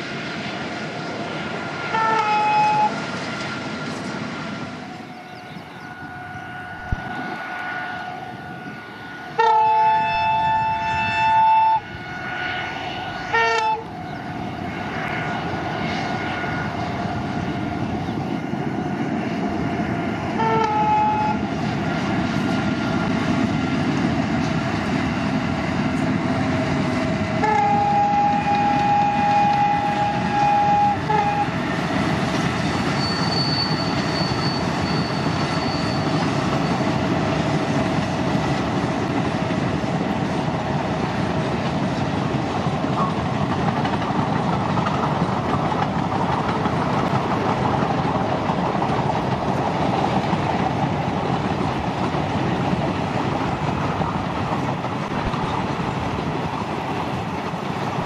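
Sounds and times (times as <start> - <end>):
train wheels rumbling: 0.0 - 58.0
locomotive horn blasts: 1.9 - 3.0, 5.8 - 14.0, 20.4 - 21.4, 27.4 - 31.6.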